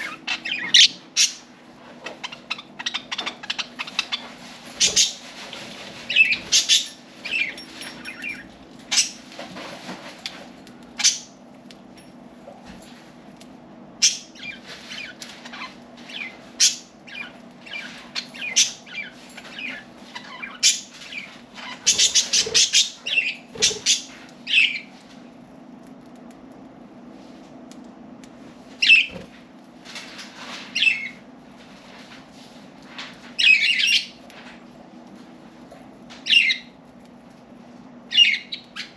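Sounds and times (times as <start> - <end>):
budgerigars chirping: 0.0 - 1.4, 16.2 - 24.8.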